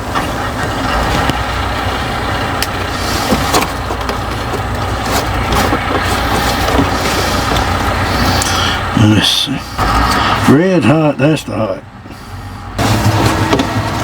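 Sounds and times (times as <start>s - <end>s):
engine idling: 0.0s - 14.0s
hand tools clicking and tapping: 2.6s - 8.6s.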